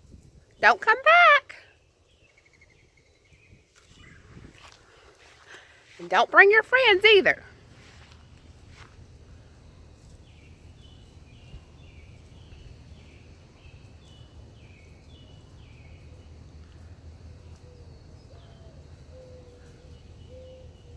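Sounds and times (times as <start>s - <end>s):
bird chirping: 0.6s - 4.4s, 9.6s - 20.9s
steady low rumble: 7.4s - 19.1s.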